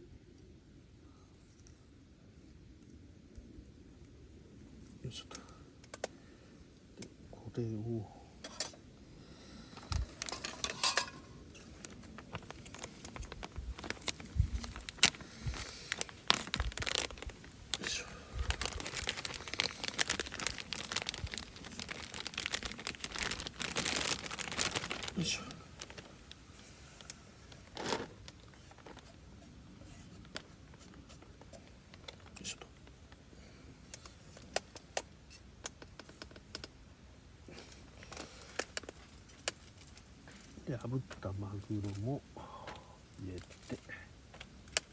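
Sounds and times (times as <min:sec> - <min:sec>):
plastic packaging crinkling: 0:09.8 - 0:33.3.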